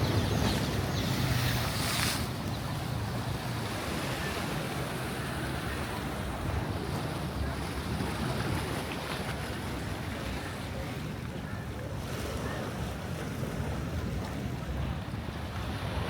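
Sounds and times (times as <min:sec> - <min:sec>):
surf washing on beach: 0:00.0 - 0:11.3.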